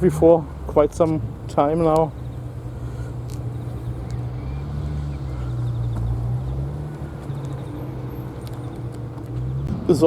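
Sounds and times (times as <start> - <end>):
car engine running at low revs: 0.1 - 9.8.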